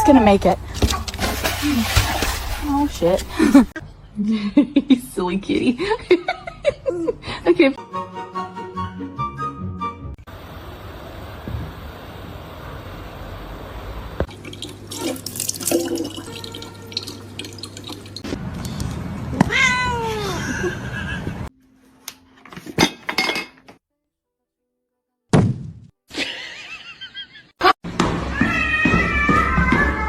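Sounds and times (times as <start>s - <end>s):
household noise: 14.2s - 18.3s
cat meowing: 19.4s - 20.4s.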